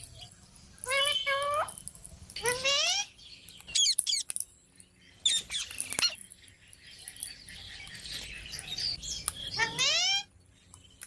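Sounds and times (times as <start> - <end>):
parakeet chirps and squawks: 0.8 - 1.8, 2.4 - 4.3, 5.1 - 6.3, 6.9 - 10.4.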